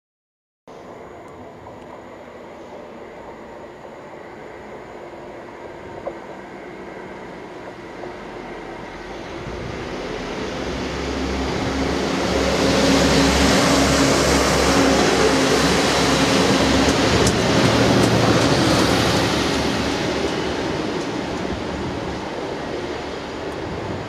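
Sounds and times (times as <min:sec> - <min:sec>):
wheel and track noise: 0:04.9 - 0:24.0.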